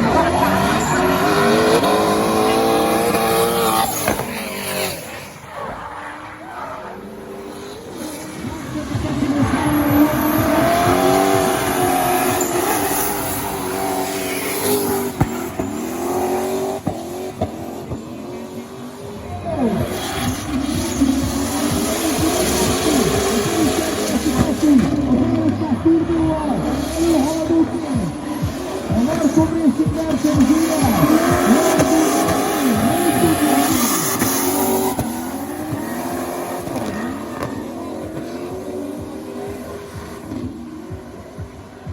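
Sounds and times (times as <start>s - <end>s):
car engine revving hard: 0.0s - 5.1s, 7.2s - 41.9s
tyres screeching: 29.0s - 38.5s.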